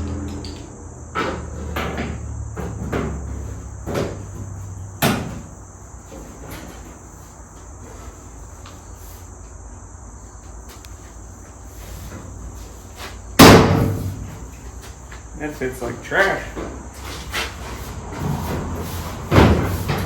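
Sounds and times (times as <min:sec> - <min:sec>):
steady high-pitched hiss: 0:00.4 - 0:20.0.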